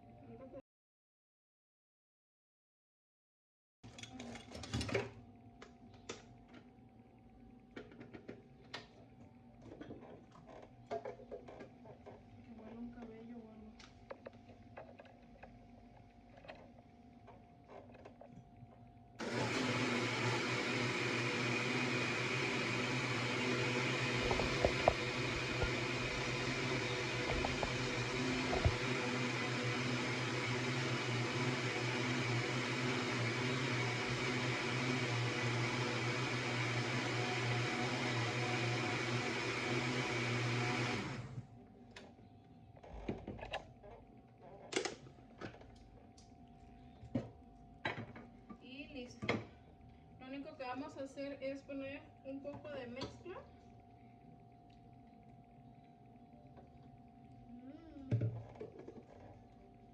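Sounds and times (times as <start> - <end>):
electric blender running: 19.2 - 41.5.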